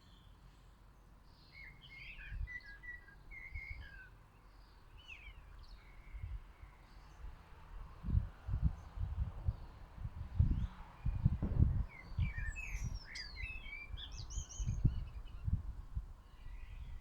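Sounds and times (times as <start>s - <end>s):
small birds chirping: 10.5s - 15.7s.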